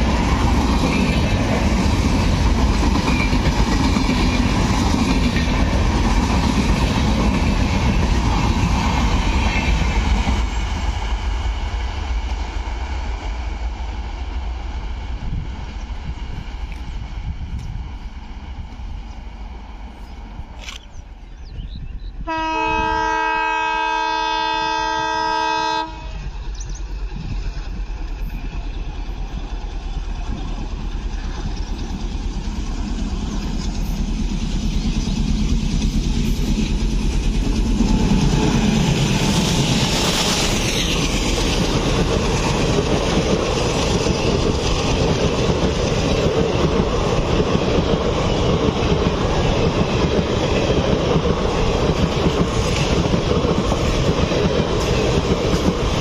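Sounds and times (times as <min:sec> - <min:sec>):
diesel locomotive engine passing: 0:00.0 - 0:56.0
train wheels on rails: 0:00.0 - 0:56.0
locomotive horn blast: 0:22.3 - 0:26.2.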